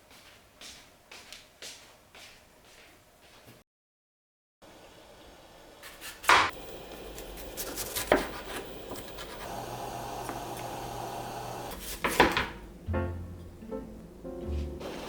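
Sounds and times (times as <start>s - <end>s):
utensils scraping: 5.9s - 11.0s
steady hum: 6.5s - 11.8s, 12.6s - 15.0s.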